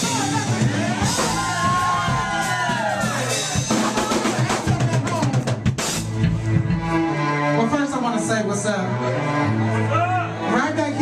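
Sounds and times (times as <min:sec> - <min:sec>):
drum kit beat: 0:00.0 - 0:07.5
bass line: 0:00.0 - 0:11.0
funk band music: 0:00.0 - 0:11.0.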